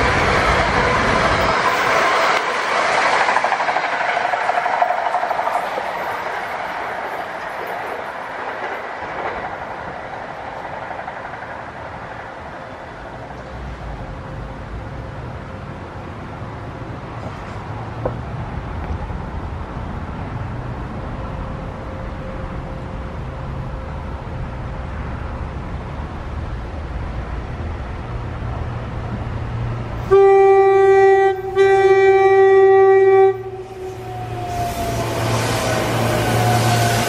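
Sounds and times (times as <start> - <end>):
falling whine: 0.0 - 10.7
rail noise: 0.0 - 37.0
train rumbling: 0.0 - 37.0
train horn blasts: 30.0 - 35.6.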